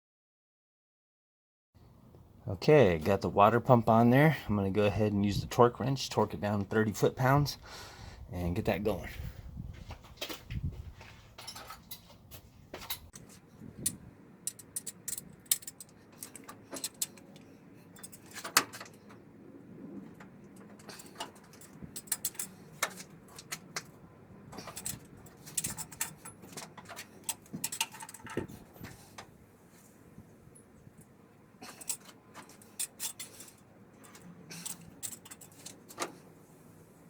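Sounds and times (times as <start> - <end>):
hand tools clinking on engine: 12.8 - 19.3, 20.1 - 29.3, 30.5 - 36.3.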